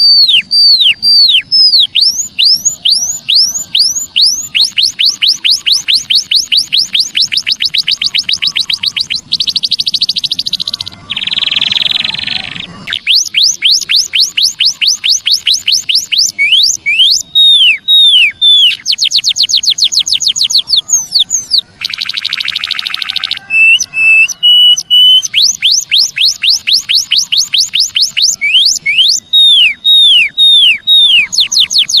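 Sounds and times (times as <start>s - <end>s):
bird chirping rapidly: 0.0s - 32.0s
buzzy bird calls: 0.0s - 32.0s
falling bird whistles: 11.2s - 32.0s.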